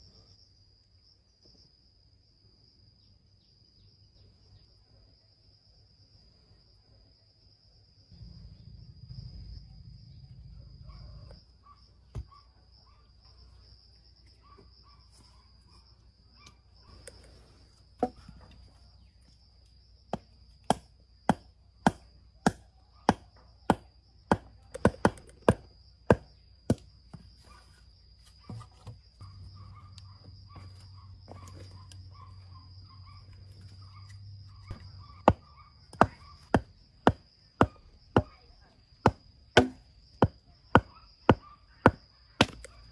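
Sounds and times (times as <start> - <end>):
insects trilling: 0.0 - 42.9
sharp chopping strikes: 39.1 - 41.4.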